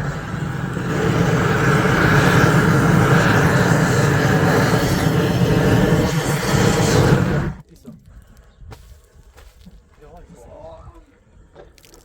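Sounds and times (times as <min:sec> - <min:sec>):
gas torch burning with rushing: 0:00.0 - 0:07.6.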